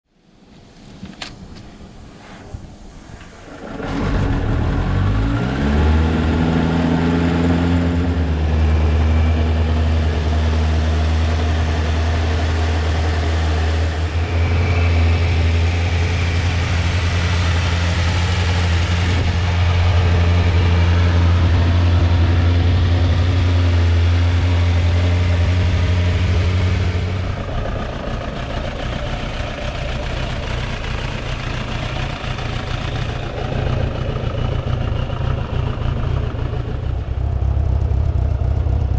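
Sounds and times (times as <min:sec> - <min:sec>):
motorcycle engine idling: 0:27.2 - 0:38.9.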